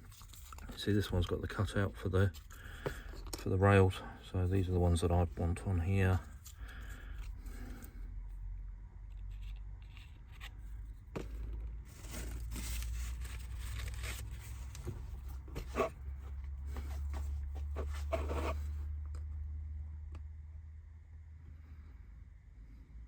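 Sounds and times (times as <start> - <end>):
low steady hum: 0.0 - 23.0
small parts scraping and clicking: 9.0 - 14.9.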